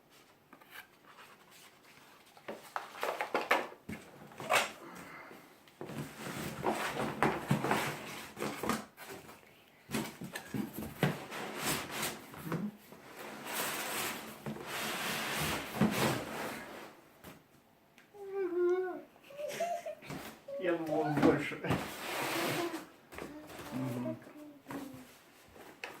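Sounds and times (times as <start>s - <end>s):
short voice sound: 22.4s - 25.0s.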